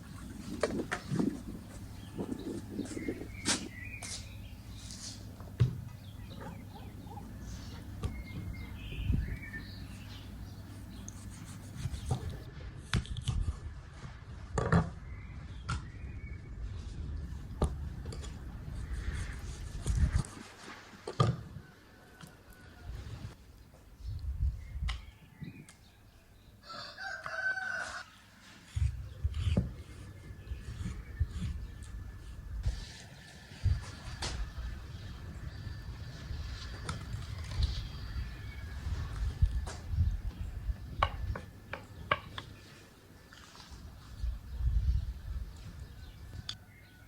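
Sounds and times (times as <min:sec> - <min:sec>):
rooster crowing: 0:26.6 - 0:28.1.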